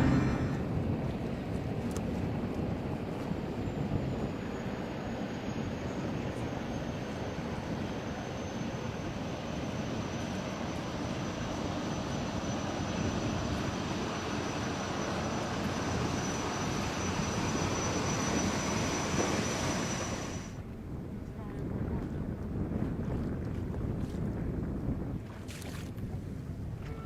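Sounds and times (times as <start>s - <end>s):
high-pitched whine: 0.0s - 0.7s, 9.0s - 20.6s
jet boat engine and water rush: 0.0s - 27.0s.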